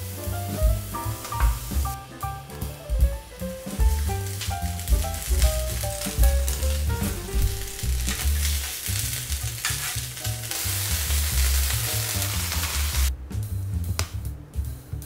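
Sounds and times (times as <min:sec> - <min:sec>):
soft background music: 0:00.0 - 0:08.8
vegetables sizzling in a pan: 0:00.0 - 0:13.1.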